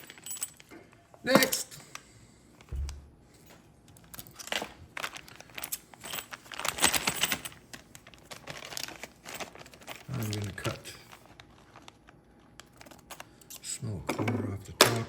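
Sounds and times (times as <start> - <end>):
plastic bag crinkling: 4.1 - 13.4.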